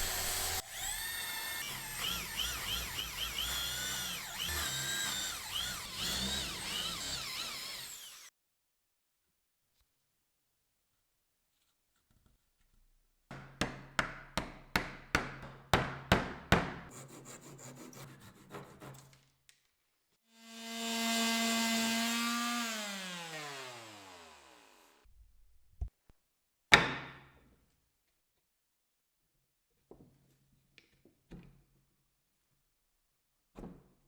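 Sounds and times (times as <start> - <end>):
power tool spinning down: 0.0 - 8.3, 20.4 - 25.0
rasping on wood: 16.9 - 19.0.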